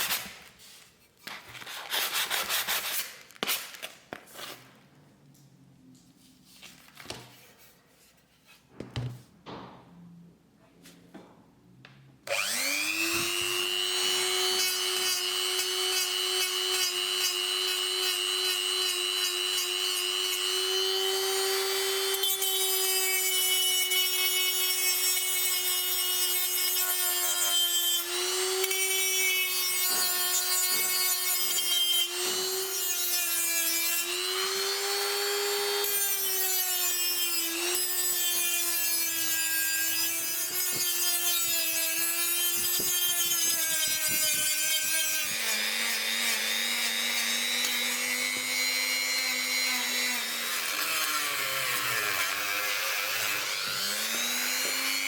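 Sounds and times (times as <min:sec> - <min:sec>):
power tool whining on metal: 0:12.3 - 0:55.0.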